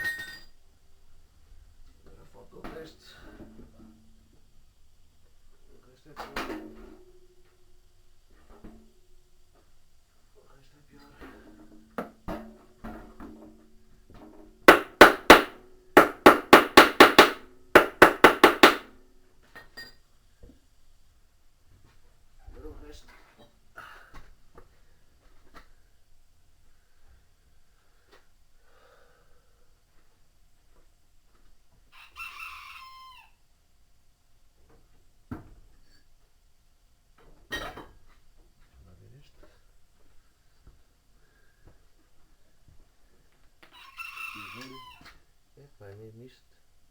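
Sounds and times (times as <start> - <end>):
hammer striking washing machine part: 14.7 - 19.0
sharp knocks: 14.7 - 19.0.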